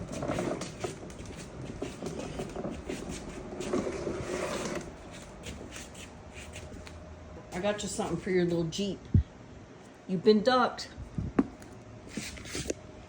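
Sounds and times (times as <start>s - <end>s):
toy car driving: 0.0s - 5.0s.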